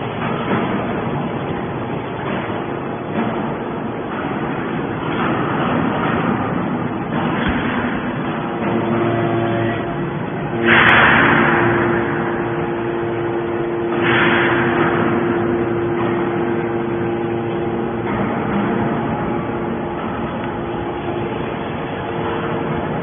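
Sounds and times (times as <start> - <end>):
hydraulic pump hum: 0.0 - 23.0
loud rushing surge: 9.7 - 23.0.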